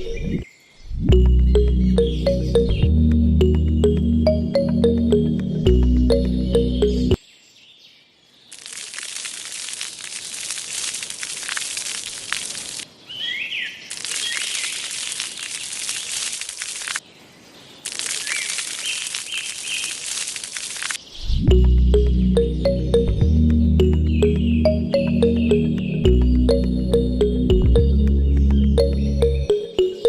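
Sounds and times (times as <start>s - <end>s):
birds chirping: 0.0s - 7.9s, 13.0s - 16.2s, 21.0s - 30.0s
hissing noise with crackles: 8.5s - 12.9s, 13.8s - 17.0s, 17.8s - 21.3s.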